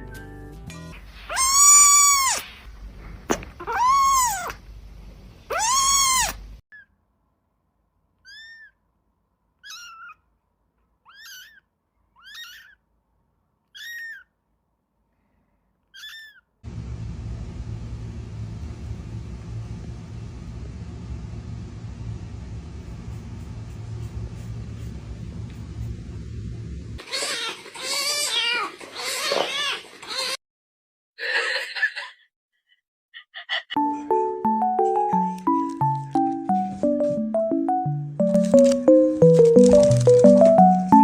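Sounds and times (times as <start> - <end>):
cat meowing loudly: 1.3 - 2.5, 5.5 - 6.4
rumbling hum: 16.7 - 27.0.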